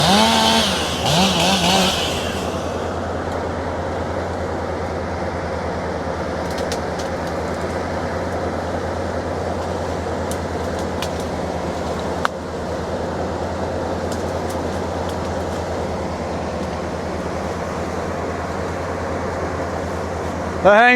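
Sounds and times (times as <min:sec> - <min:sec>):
chainsaw revving: 0:00.0 - 0:03.4
low engine hum: 0:00.0 - 0:20.9.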